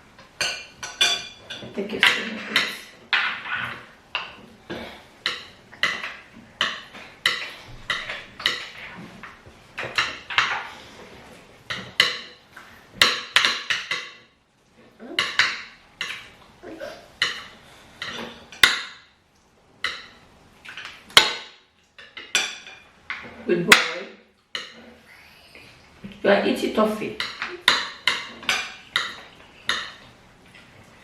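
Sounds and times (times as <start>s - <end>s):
spoons clinking on plates: 0.2s - 4.4s, 5.2s - 8.8s, 22.0s - 23.9s, 27.2s - 30.1s.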